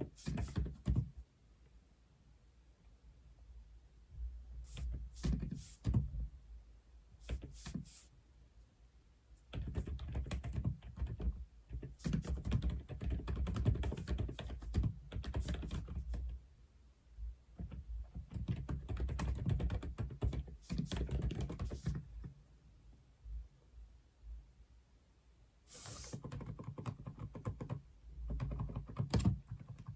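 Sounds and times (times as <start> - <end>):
mechanical keyboard typing: 0.2 - 1.1, 9.5 - 16.2, 17.6 - 22.0, 26.1 - 29.9.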